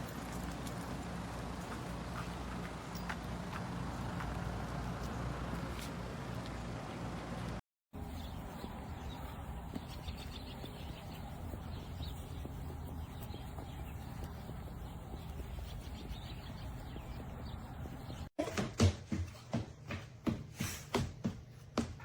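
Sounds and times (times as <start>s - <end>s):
outdoor background rumble: 0.0s - 18.3s.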